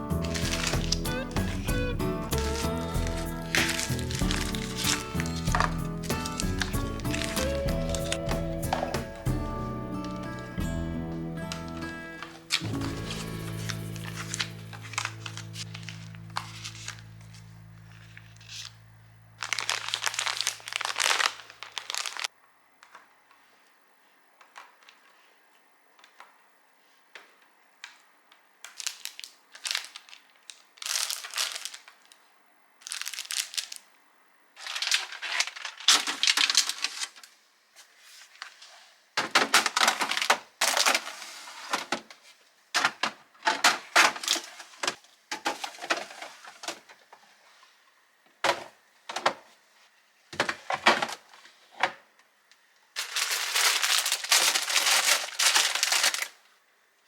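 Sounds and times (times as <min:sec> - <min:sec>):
plastic packaging crinkling: 0:00.0 - 0:09.2, 0:11.6 - 0:18.8, 0:19.4 - 0:22.3, 0:28.6 - 0:33.9, 0:34.6 - 0:41.9, 0:42.8 - 0:46.9, 0:53.0 - 0:56.5
items set down clicking: 0:02.3 - 0:09.2, 0:39.2 - 0:42.2, 0:42.8 - 0:47.0.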